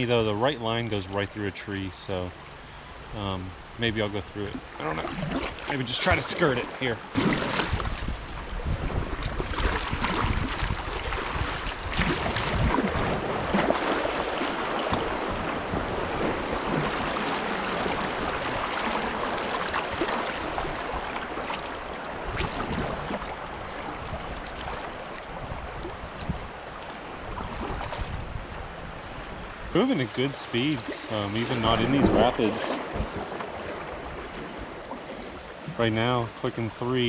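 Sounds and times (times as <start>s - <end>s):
paddle splashes: 4.3s - 36.7s
river water rushing: 4.6s - 8.6s, 9.5s - 36.0s.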